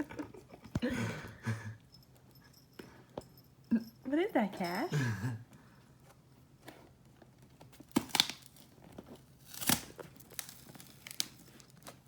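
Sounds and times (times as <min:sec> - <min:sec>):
packaging crinkling: 0:07.8 - 0:12.0.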